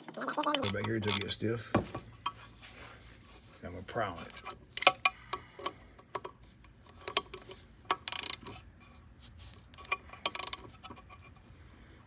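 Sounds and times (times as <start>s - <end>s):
wrench rattling: 0.3s - 1.4s, 4.3s - 8.6s, 9.8s - 11.4s
wrench clicking on bolts: 0.4s - 1.3s, 4.7s - 6.3s, 6.9s - 8.6s, 9.8s - 10.7s.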